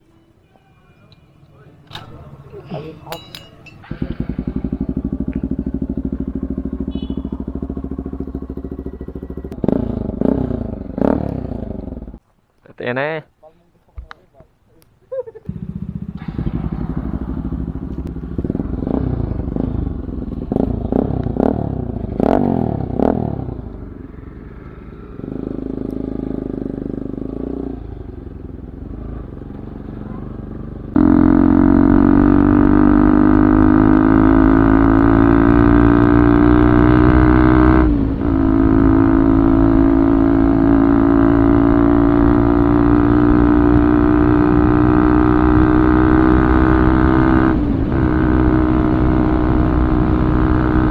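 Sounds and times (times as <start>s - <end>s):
motorcycle engine revving: 1.4s - 12.2s, 15.5s - 50.9s
loud steady drone: 30.9s - 50.9s.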